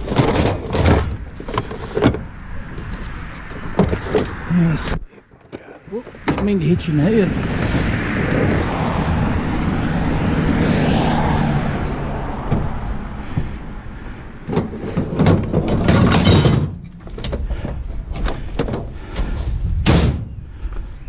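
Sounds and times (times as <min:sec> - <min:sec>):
metal clanks and knocks: 0:00.0 - 0:04.4, 0:14.4 - 0:20.4
sheet metal scraping and rattling: 0:14.4 - 0:20.3.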